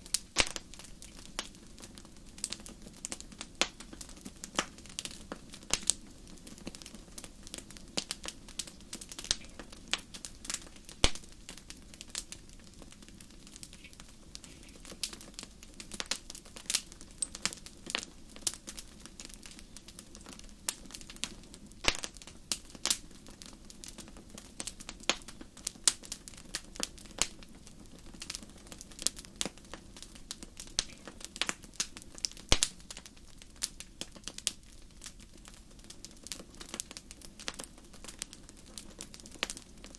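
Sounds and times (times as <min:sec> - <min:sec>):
hiss of flames: 0:00.0 - 0:39.9
wood fire crackling: 0:00.0 - 0:39.9.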